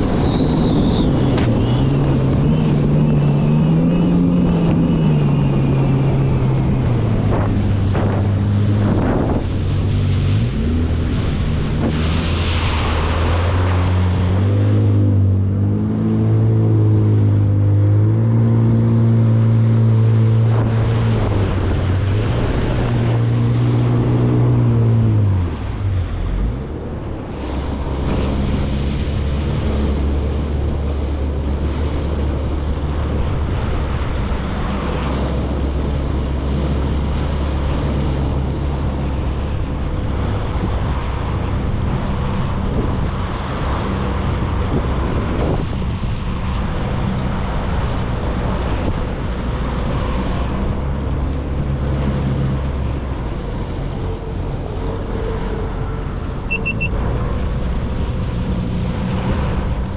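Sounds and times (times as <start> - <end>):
jet ski engine running: 0.0 - 59.9
water rushing against hull: 0.0 - 59.9
wind buffeting microphone: 0.0 - 59.9.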